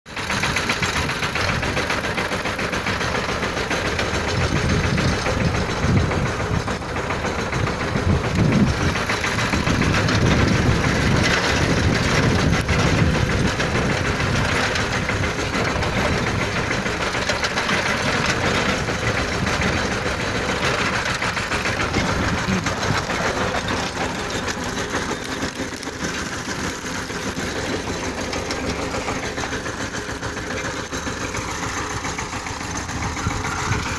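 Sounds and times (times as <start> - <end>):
vehicle engine running: 0.0 - 33.9.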